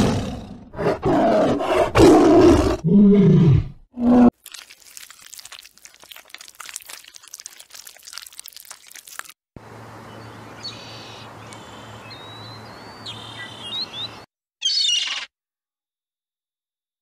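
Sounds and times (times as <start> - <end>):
small birds chirping: 9.7 - 15.3.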